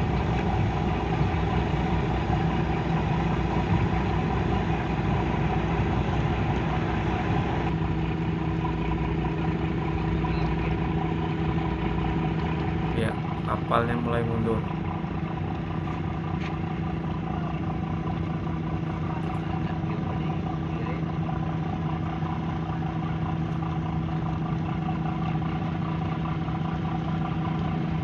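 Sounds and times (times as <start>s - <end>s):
ship diesel engines humming: 0.0s - 28.0s.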